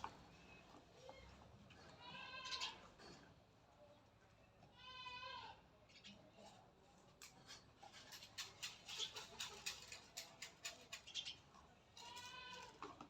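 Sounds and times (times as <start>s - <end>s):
goat bleating: 2.0s - 2.8s, 4.8s - 5.6s, 12.0s - 12.8s.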